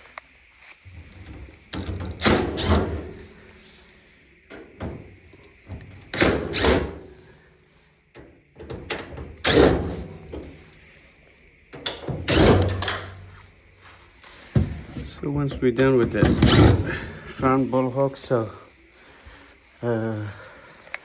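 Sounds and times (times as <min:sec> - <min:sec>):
dryer panel parts clunking: 0:00.9 - 0:07.4, 0:08.2 - 0:11.0, 0:11.7 - 0:17.6.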